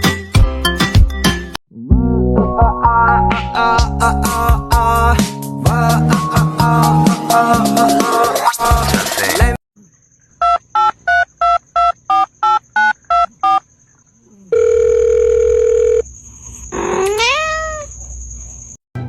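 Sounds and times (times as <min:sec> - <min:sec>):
music: 0:00.0 - 0:09.6
steady telephone tone: 0:14.5 - 0:16.0
cat meowing: 0:16.8 - 0:18.0.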